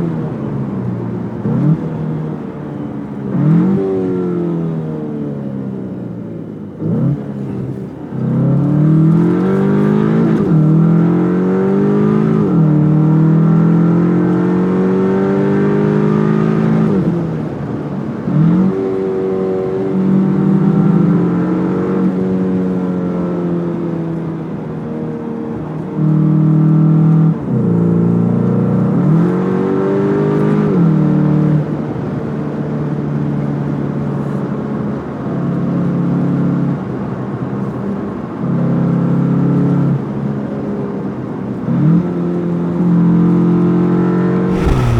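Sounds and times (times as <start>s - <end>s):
car engine accelerating through gears: 44.5s - 44.9s.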